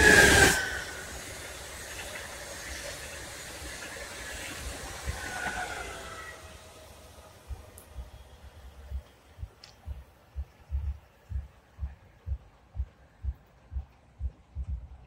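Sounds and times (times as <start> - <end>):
falling whine of train: 0.0 - 9.3
high-speed train rushing past: 0.0 - 13.9.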